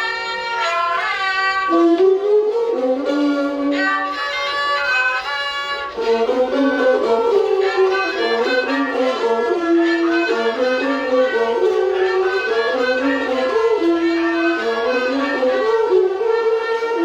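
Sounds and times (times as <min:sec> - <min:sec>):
bowed string melody: 0:00.0 - 0:17.0
classical ensemble music: 0:00.0 - 0:17.0.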